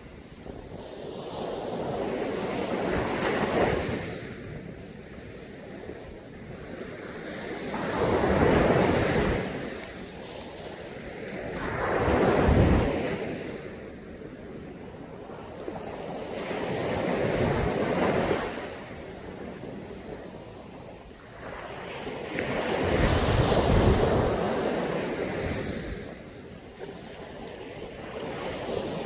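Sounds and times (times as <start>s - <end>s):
waves breaking on beach: 0.0s - 29.0s.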